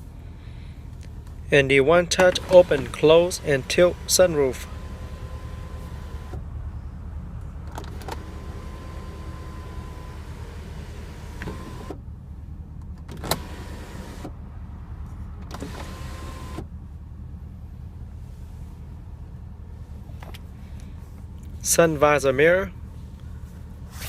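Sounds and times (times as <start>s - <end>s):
low steady rumble: 0.0s - 24.0s
sunroof motor whirring: 1.9s - 12.0s, 13.2s - 14.4s, 15.4s - 16.8s.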